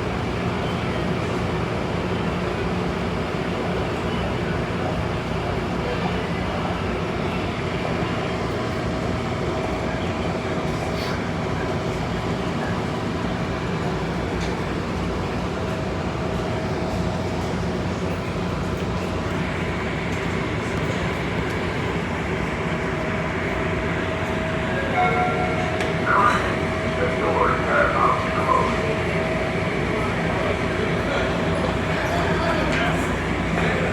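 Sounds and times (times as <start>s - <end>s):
diesel locomotive idling rumble: 0.0s - 33.9s
faint steady whine: 24.0s - 31.0s.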